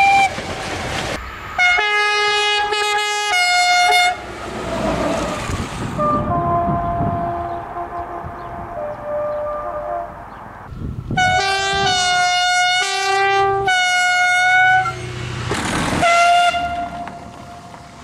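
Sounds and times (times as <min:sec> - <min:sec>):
locomotive air horn blasts: 0:01.6 - 0:04.2, 0:06.0 - 0:10.2, 0:11.2 - 0:15.2, 0:16.0 - 0:17.7.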